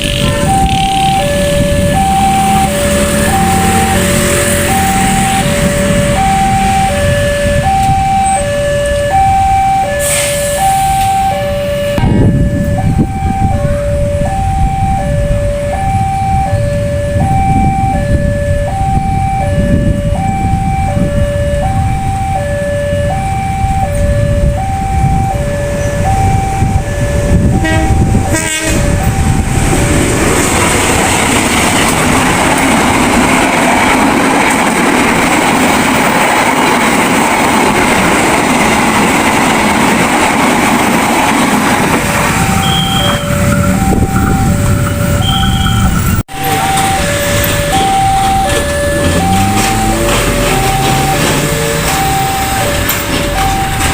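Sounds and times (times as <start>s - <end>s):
railroad crossing alarm two-tone: 0.0s - 53.9s
train rolling past: 0.0s - 53.9s
trucks idling rumble: 0.0s - 53.9s.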